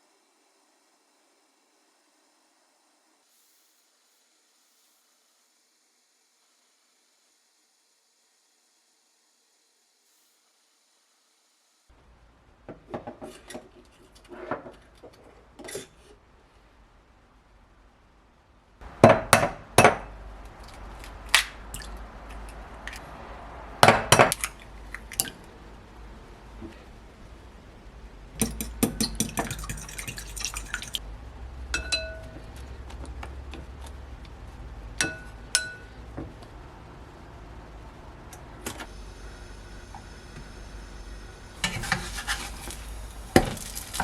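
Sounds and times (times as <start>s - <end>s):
utensils and dishes clinking: 31.7s - 32.4s, 41.6s - 44.0s.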